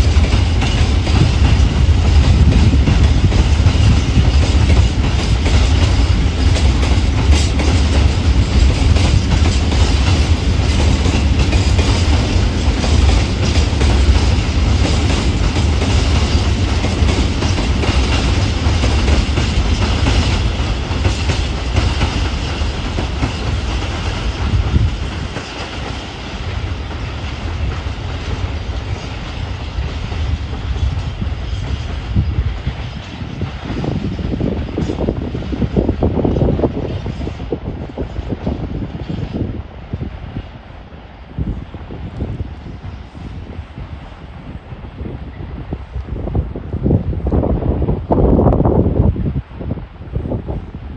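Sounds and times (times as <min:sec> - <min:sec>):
train wheels clattering over rail joints: 0:00.0 - 0:39.4
heavy low train rumble: 0:00.0 - 0:50.9.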